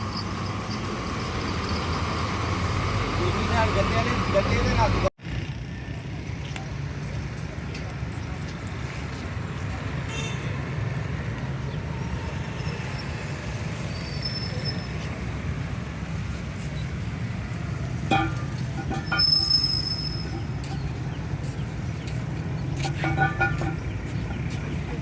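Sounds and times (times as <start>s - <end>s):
sharp knocks or clanks: 18.0s - 21.1s, 22.7s - 24.6s
vehicle engine running: 20.0s - 25.0s.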